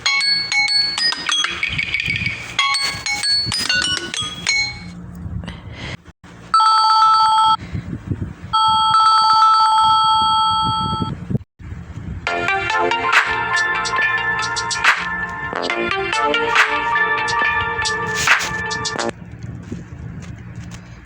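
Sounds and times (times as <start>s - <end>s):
melodic ringtone: 0.0s - 4.9s, 8.6s - 11.1s, 12.3s - 19.1s
telephone bell ringtone trill: 0.0s - 4.9s, 6.6s - 7.6s, 8.6s - 11.1s, 12.3s - 19.1s.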